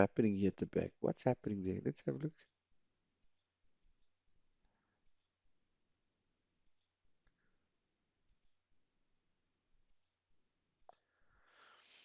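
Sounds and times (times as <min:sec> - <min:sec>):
computer mouse clicks: 0:03.2 - 0:04.2, 0:05.0 - 0:05.4, 0:06.6 - 0:07.4, 0:08.2 - 0:08.6, 0:09.8 - 0:10.2, 0:10.8 - 0:11.1.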